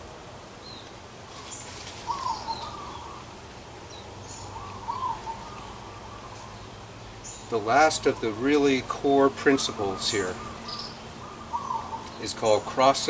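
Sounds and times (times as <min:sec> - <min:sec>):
steady low hum: 0:00.0 - 0:13.0
thin high bird chirps: 0:00.6 - 0:07.5
bird warbled call: 0:01.4 - 0:03.4, 0:04.2 - 0:07.5, 0:09.5 - 0:12.8.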